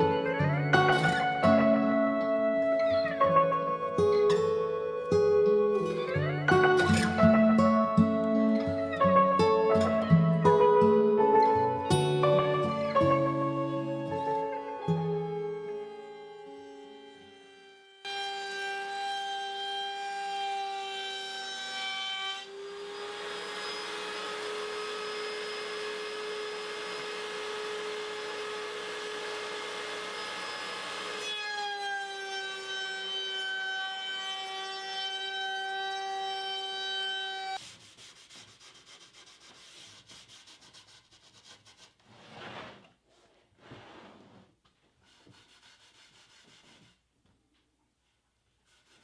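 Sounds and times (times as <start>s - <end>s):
power tool cutting wood: 12.2s - 37.6s
power tool motor whining: 22.4s - 32.6s
rubbing on wood: 37.6s - 47.0s.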